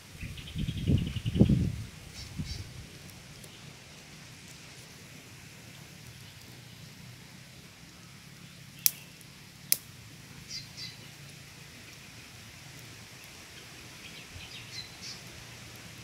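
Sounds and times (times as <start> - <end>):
birds chirping: 0.2 - 4.0, 5.6 - 9.3, 10.3 - 15.4
sharp clicks: 8.8 - 9.0.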